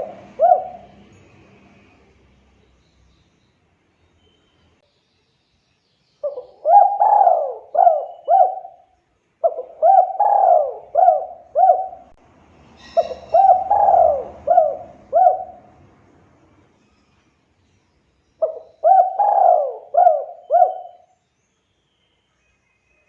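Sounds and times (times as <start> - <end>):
dove cooing: 0.0 - 1.2, 6.2 - 8.8, 9.4 - 12.2, 12.9 - 15.8, 18.4 - 21.1.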